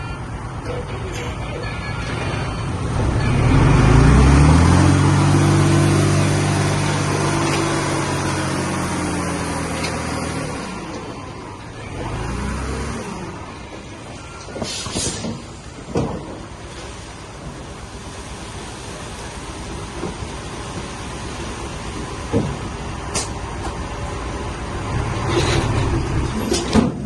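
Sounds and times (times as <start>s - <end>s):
diesel engine revving: 2.1s - 14.4s, 22.8s - 27.0s.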